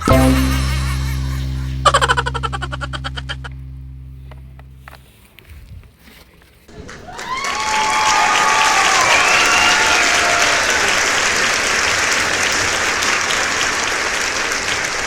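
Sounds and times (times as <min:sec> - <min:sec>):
crowd applause: 0:06.7 - 0:15.0.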